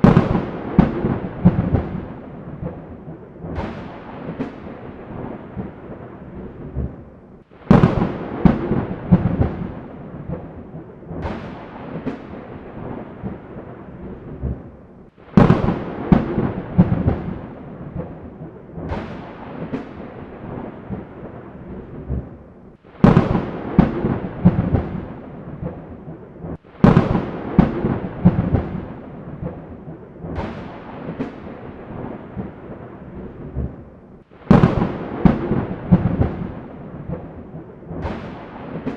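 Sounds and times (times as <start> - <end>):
rolling thunder rumble: 0.0 - 38.9
thunderclaps: 0.0 - 38.9
rain hiss: 7.4 - 10.4, 34.2 - 38.9.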